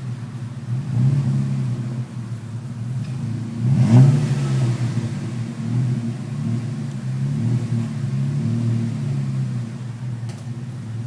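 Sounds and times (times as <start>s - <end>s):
car engine running loud: 0.0s - 11.0s.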